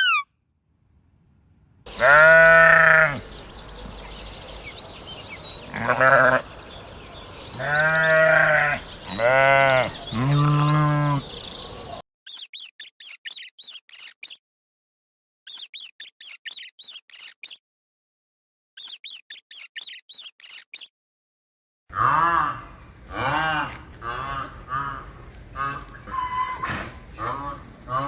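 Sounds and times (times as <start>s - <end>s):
sheep bleating: 1.9s - 3.2s, 5.7s - 6.5s, 7.5s - 11.4s
rapid high-pitched chirping: 12.3s - 14.4s, 15.5s - 17.6s, 18.8s - 20.9s.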